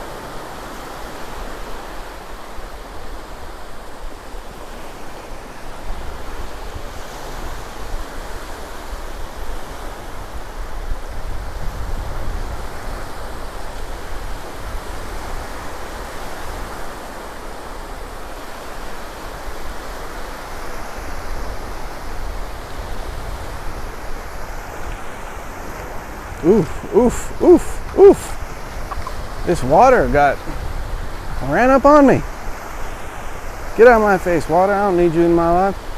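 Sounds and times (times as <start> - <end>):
wind rumbling on microphone: 0.0 - 34.4
surf washing onto beach: 0.0 - 35.9.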